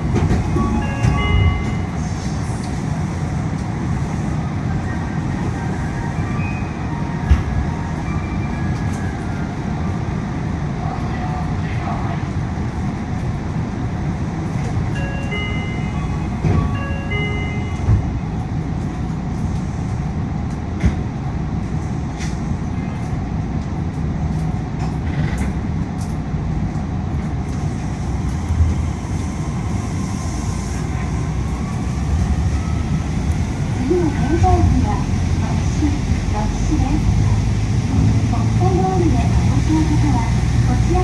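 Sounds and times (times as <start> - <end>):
train running noise: 0.0 - 41.0.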